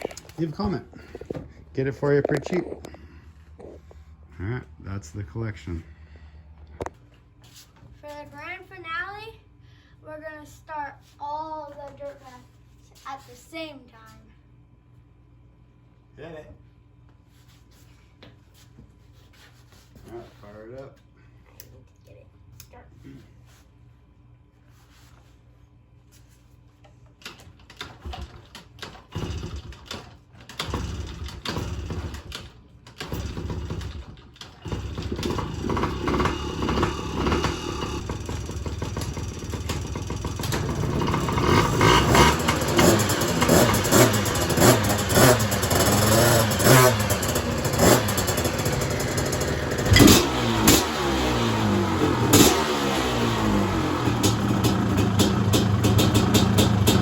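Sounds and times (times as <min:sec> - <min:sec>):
dirt bike engines starting and revving: 0:00.0 - 0:07.1, 0:27.3 - 0:57.0.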